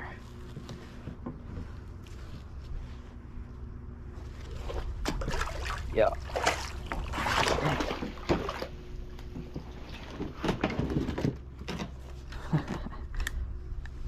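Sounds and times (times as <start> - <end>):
water splashing and sloshing: 4.2 - 11.4.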